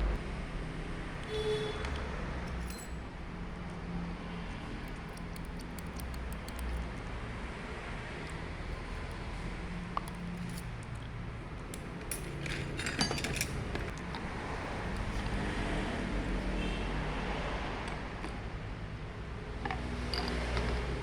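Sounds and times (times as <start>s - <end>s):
small metal parts clinking: 2.4s - 7.0s, 8.6s - 15.2s.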